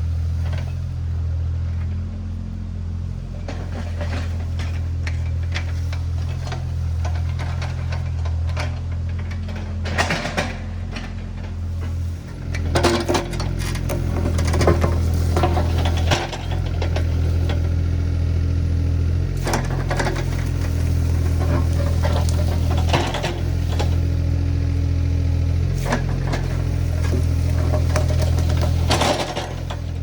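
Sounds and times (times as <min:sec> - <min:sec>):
diesel engine running: 0:00.0 - 0:30.0
machine clanks and knocks: 0:03.4 - 0:17.7, 0:19.4 - 0:24.2, 0:25.6 - 0:30.0.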